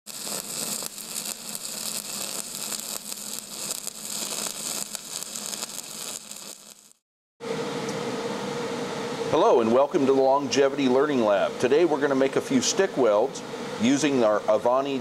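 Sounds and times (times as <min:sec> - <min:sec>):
welding arc crackling and hissing: 0:00.0 - 0:07.0.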